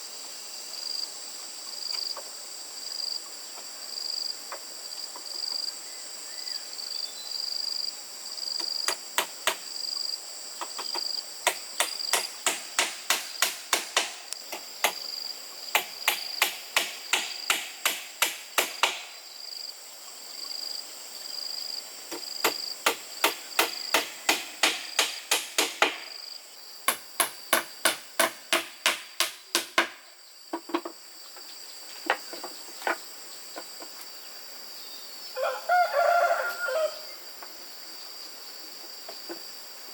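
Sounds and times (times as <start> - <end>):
insects trilling: 0.0 - 39.9
hammer driving nails: 11.5 - 15.0, 15.8 - 19.1, 22.4 - 26.1, 26.9 - 30.0.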